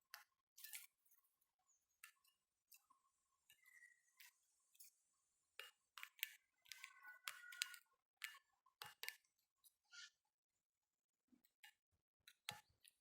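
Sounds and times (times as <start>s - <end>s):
birds pecking at peanuts: 5.6s - 7.8s.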